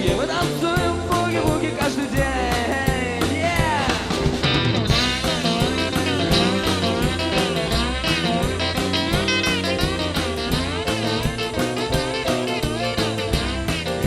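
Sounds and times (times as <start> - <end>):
bass: 0.0 - 14.0
steady drum beat: 0.0 - 14.0
lead guitar bending notes: 4.4 - 14.0.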